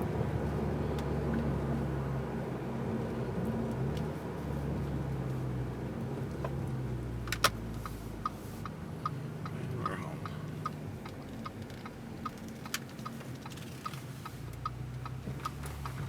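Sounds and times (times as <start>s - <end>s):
turn signal ticking: 6.3s - 16.0s.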